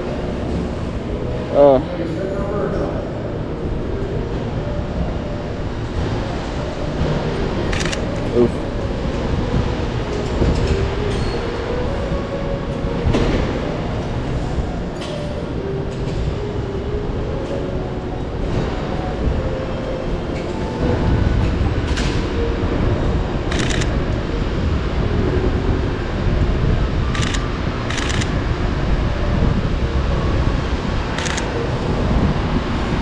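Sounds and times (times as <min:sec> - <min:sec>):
street traffic rumble: 0:00.0 - 0:33.0
camera shutter clicks: 0:23.5 - 0:23.9, 0:27.2 - 0:28.3, 0:31.2 - 0:31.5.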